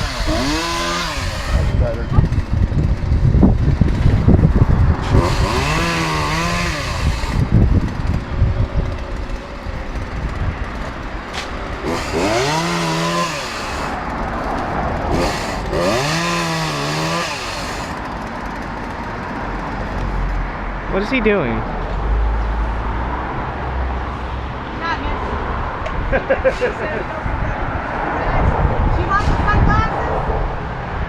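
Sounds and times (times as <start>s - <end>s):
chainsaw revving: 0.0s - 20.0s.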